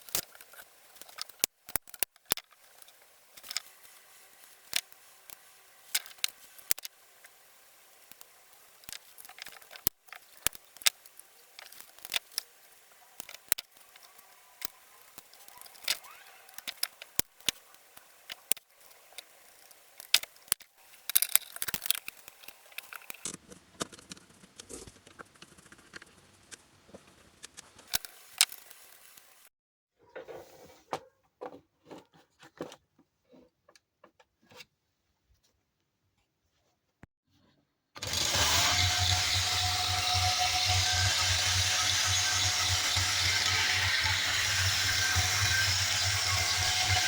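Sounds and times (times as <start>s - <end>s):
small hard objects clicking: 0.0s - 7.4s, 8.0s - 24.8s, 27.4s - 29.5s, 38.0s - 47.0s.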